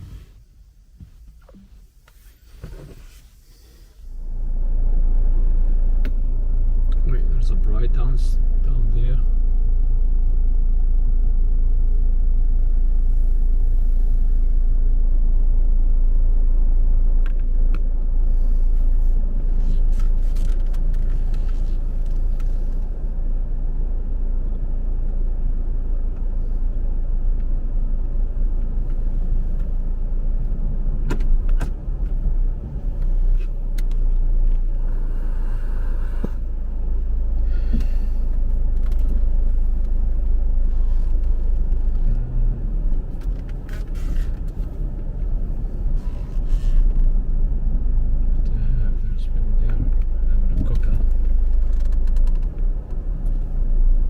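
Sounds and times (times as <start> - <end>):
loud low rumble: 4.2 - 19.6, 21.8 - 54.0.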